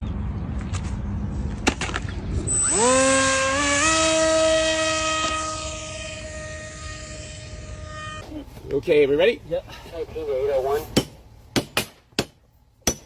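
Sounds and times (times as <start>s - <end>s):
long horn-like tone: 2.5s - 8.3s.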